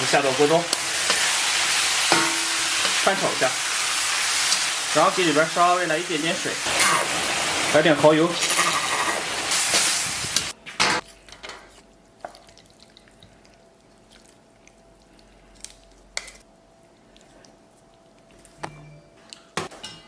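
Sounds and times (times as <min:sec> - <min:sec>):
stir-fry sizzling in a wok: 0:00.0 - 0:10.6.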